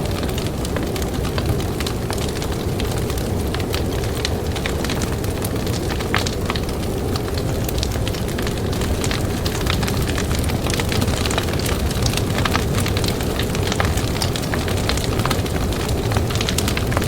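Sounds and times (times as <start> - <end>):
campfire crackling and popping: 0.0 - 17.0
low wind rumble: 0.0 - 17.0.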